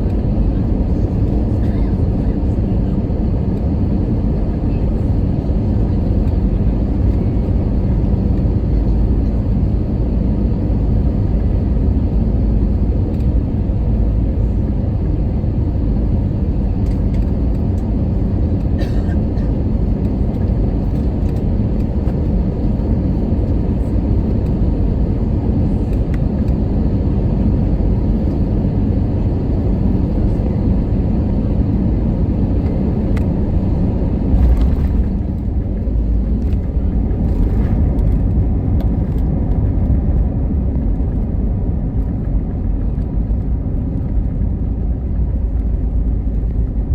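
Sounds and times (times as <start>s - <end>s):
airplane cabin engine rumble: 0.0s - 46.9s.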